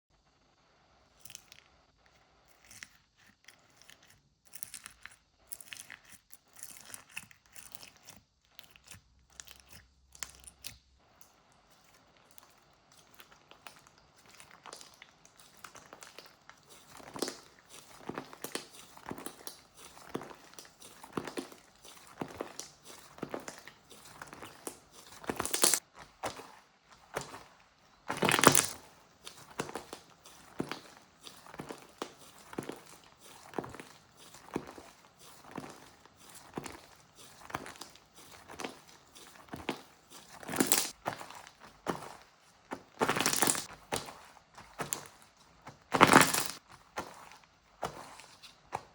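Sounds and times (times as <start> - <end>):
crunchy biscuit being chewed: 1.1 - 46.7
wrapper crinkling: 12.4 - 41.0, 43.0 - 43.7, 45.9 - 46.6.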